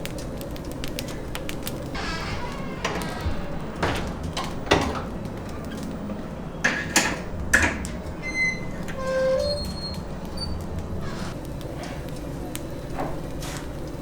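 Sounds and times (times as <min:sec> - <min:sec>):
metal scraping squeaks: 0:01.9 - 0:12.1
metallic clanks and knocks: 0:02.7 - 0:08.2.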